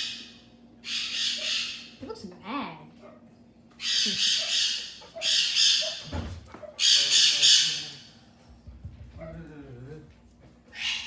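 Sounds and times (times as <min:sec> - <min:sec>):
parrot screeching: 0:00.0 - 0:02.0, 0:03.8 - 0:06.2, 0:06.8 - 0:08.1, 0:10.7 - 0:11.0.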